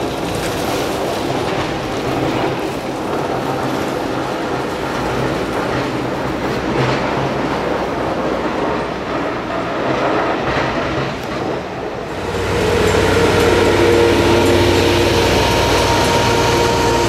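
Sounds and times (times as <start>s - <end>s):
vehicle rumbling and rattling: 0.0s - 17.0s
low hum: 12.0s - 17.0s.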